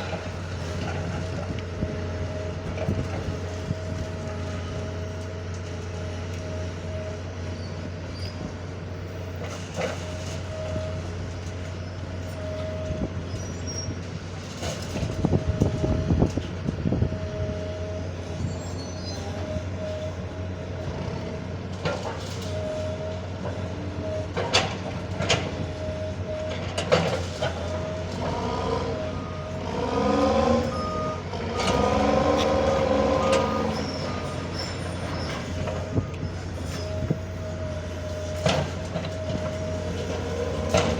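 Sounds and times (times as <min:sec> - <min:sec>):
diesel engine running: 0:00.0 - 0:40.9
metal grinding squeal: 0:11.8 - 0:14.0, 0:18.0 - 0:20.0, 0:27.1 - 0:40.9.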